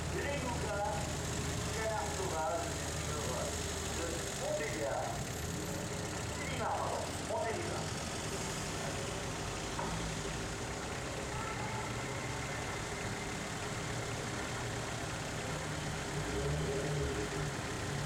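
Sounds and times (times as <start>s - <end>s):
old car engines running: 0.0s - 18.0s.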